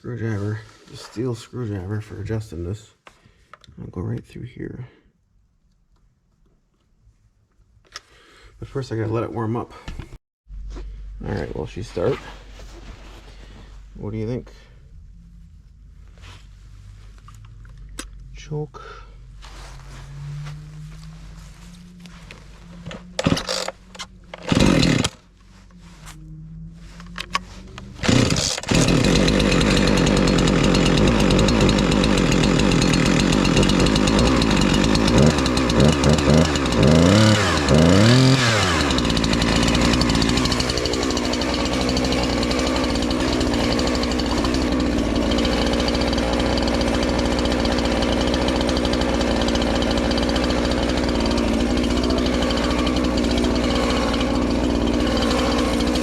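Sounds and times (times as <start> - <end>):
chainsaw starting and revving: 22.8 - 25.2, 28.0 - 56.0.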